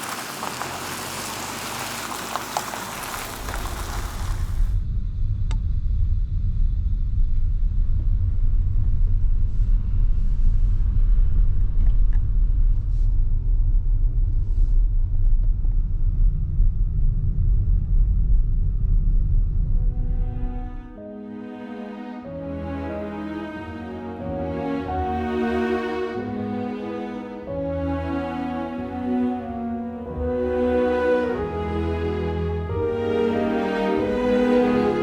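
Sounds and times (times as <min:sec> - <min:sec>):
deep rumble: 0:02.9 - 0:21.0.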